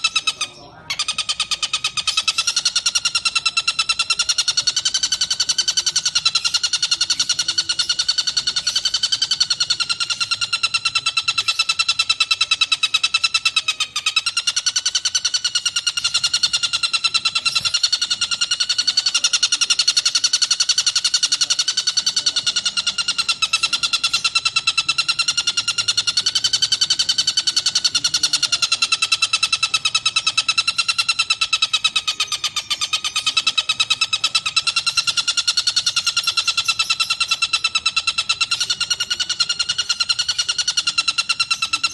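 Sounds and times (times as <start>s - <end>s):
kingfisher harsh rapid chatter: 0.0s - 41.9s.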